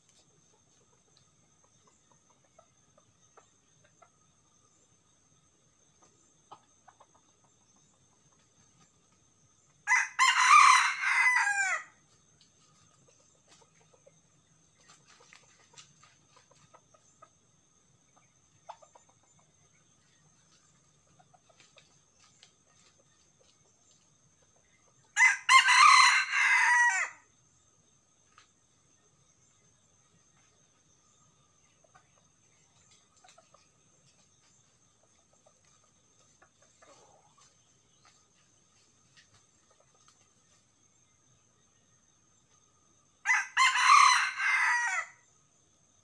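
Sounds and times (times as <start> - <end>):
rooster crowing: 9.9 - 12.0, 25.2 - 27.2, 43.2 - 45.2.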